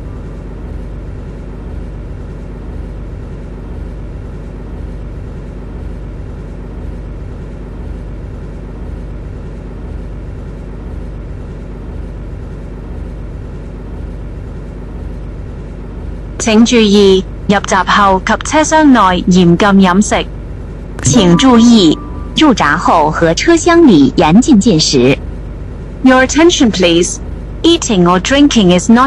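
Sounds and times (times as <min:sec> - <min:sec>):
constant hum: 0:00.0 - 0:29.0
faint pulse: 0:21.0 - 0:23.3.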